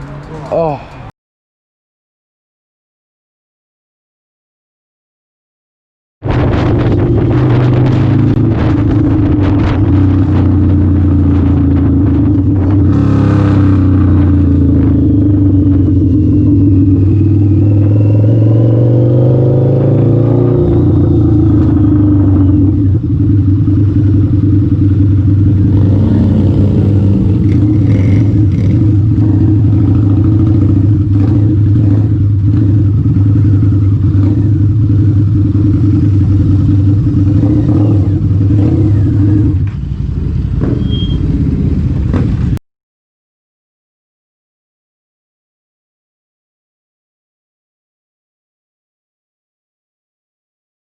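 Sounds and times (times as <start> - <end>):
motorcycle engine running: 6.2 - 42.6.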